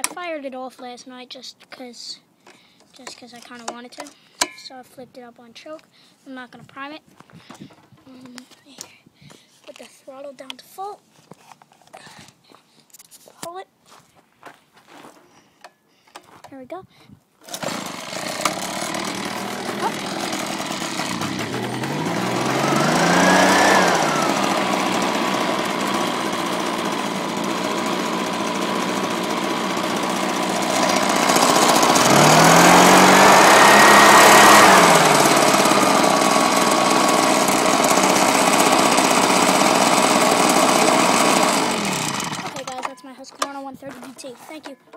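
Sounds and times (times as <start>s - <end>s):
leaf blower engine revving: 17.4s - 42.9s.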